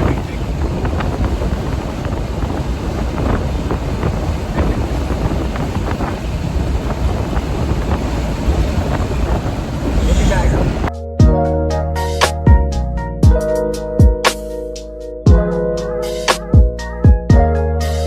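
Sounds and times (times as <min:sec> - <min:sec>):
road and engine noise: 0:00.0 - 0:10.9
wind buffeting microphone: 0:00.0 - 0:10.9.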